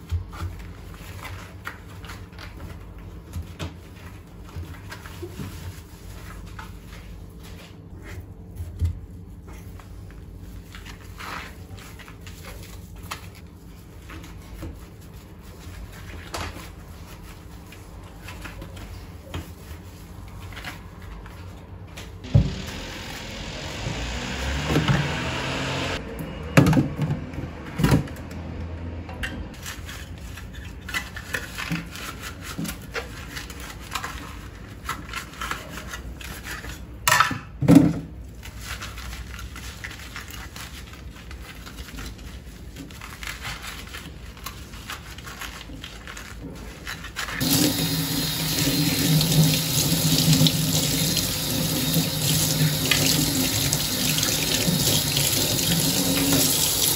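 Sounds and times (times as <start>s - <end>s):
tap water running into sink: 47.4s - 56.9s.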